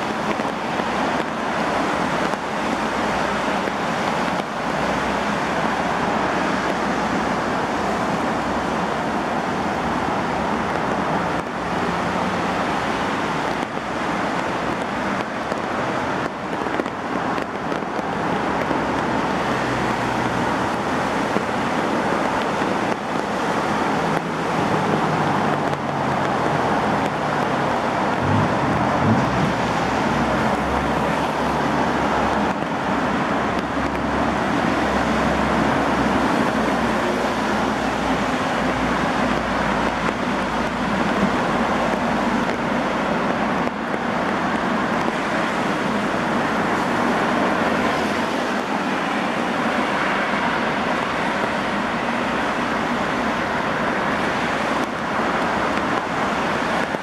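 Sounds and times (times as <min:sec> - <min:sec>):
heavy rain falling: 0:00.0 - 0:57.0
low rumble: 0:28.2 - 0:30.3.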